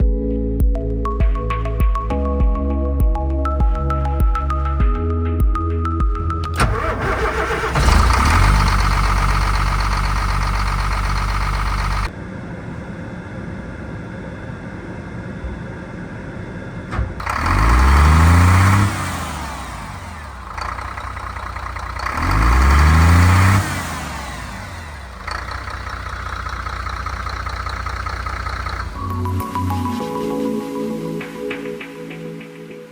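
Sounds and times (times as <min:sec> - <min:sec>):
bus diesel engine starting and idling: 0:06.4 - 0:31.8
engine revving: 0:06.5 - 0:29.4.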